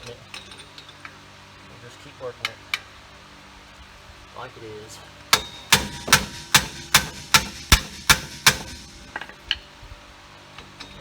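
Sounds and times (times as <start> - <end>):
hammer striking steel: 5.4 - 9.4.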